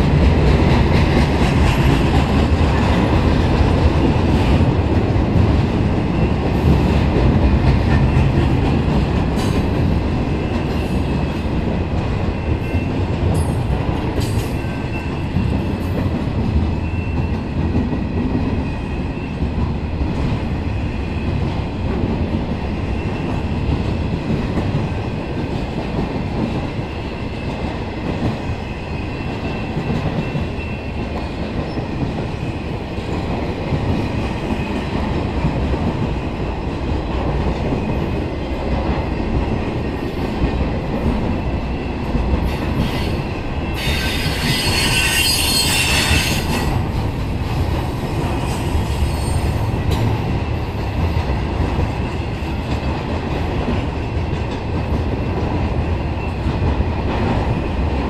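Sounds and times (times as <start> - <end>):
train wheels rumbling on rail: 0.0 - 58.0
high wheel screech: 43.8 - 46.6.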